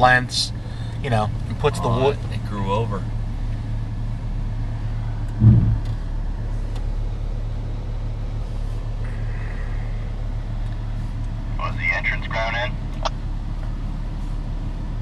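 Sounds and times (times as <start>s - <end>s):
vehicle engine low drone: 0.0s - 15.0s
loud thump: 5.4s - 5.9s.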